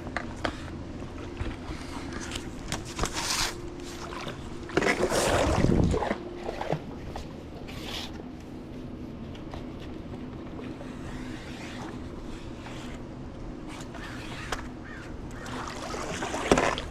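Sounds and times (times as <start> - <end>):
steady low hum: 0.0 - 16.9
pool brush swishing through water: 1.6 - 8.2, 10.6 - 13.0, 15.4 - 16.9.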